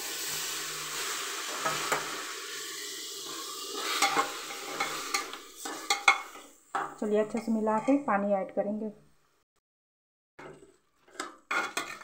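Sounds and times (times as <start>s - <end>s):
spices sizzling in oil: 0.0s - 8.3s
spatula scraping rice in pot: 10.4s - 12.0s.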